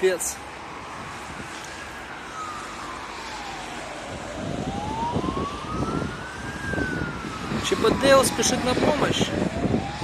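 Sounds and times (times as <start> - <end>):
siren wailing: 0.6 - 10.0.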